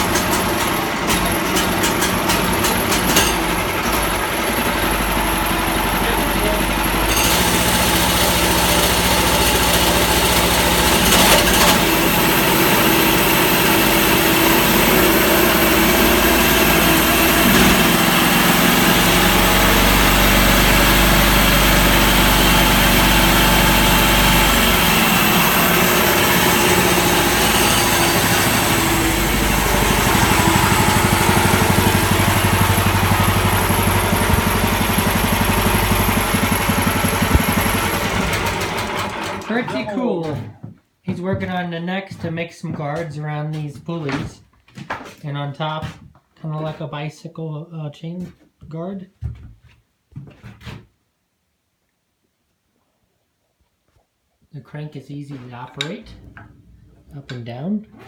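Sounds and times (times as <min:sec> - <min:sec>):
small engine running sawmill: 0:00.0 - 0:39.9.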